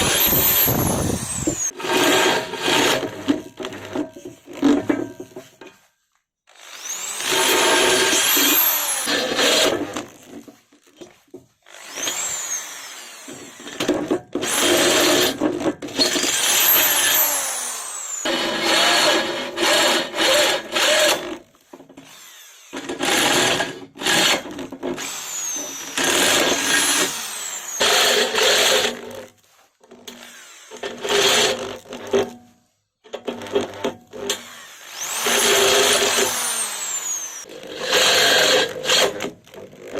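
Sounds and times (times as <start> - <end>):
electric drill motor whine: 0.0 - 1.7, 6.5 - 9.2, 11.7 - 15.3, 15.9 - 18.9, 22.0 - 24.4, 25.0 - 28.5, 34.4 - 39.0.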